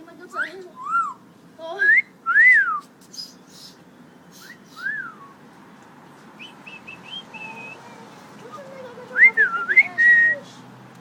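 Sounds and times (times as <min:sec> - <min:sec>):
parrot chirps: 0:00.3 - 0:01.2
parrot whistling: 0:00.4 - 0:01.2, 0:01.8 - 0:05.4.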